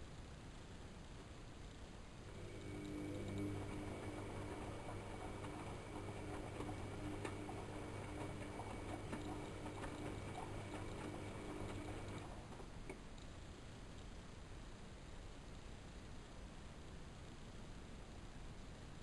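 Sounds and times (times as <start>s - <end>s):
washing machine motor humming: 2.3s - 13.0s.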